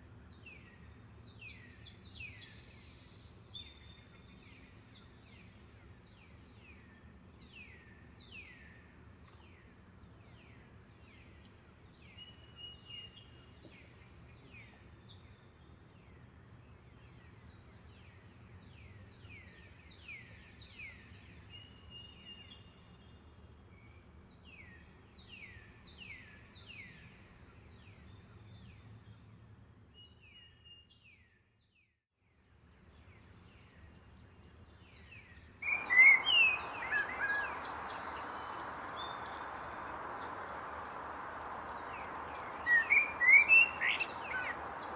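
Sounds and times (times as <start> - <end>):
birds chirping: 35.6 - 44.9
high-pitched insect trill: 35.6 - 44.9
river rushing: 35.6 - 44.9.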